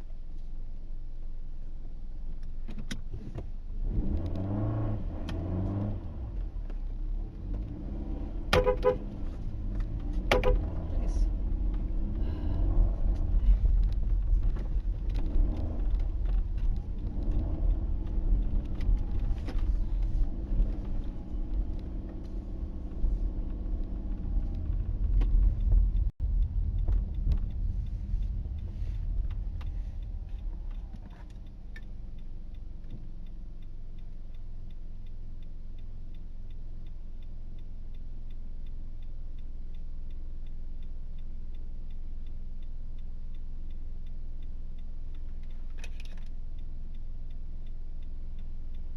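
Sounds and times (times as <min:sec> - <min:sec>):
car engine revving: 0:03.7 - 0:34.7
car indicator ticking: 0:07.4 - 0:48.9.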